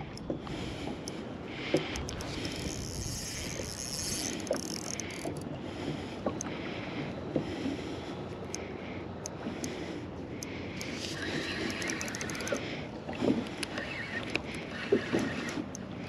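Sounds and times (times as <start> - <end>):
water sloshing against kayak hull: 10.5 - 16.0.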